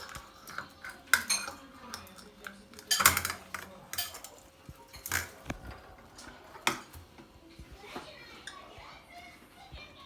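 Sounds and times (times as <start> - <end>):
cutlery and dishes clinking: 0.0 - 7.3.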